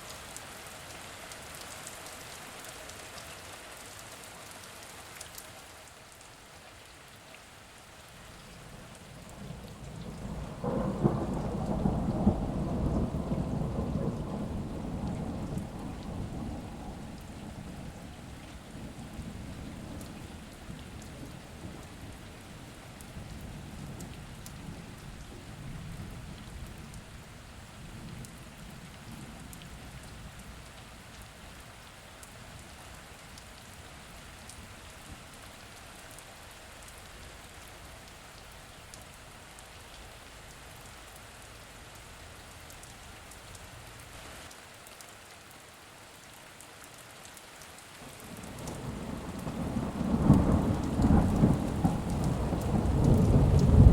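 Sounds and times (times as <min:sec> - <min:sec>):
rain falling: 0:00.0 - 0:53.9
distant thunder rumbling: 0:09.1 - 0:22.4, 0:48.3 - 0:53.9.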